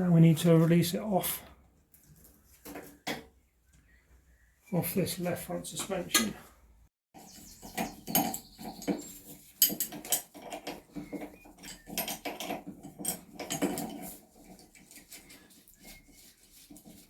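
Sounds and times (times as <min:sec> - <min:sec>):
tools and metal parts clinking: 0:07.3 - 0:16.0.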